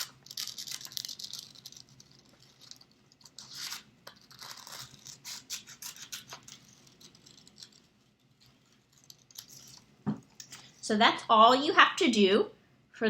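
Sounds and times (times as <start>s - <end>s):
scissors snipping paper: 0.0s - 7.9s
paper scratching: 0.0s - 9.9s.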